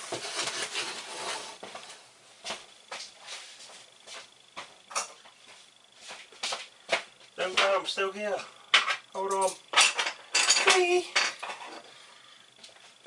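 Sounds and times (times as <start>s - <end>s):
pipe parts rustling and scraping: 0.0s - 2.1s, 8.4s - 12.0s.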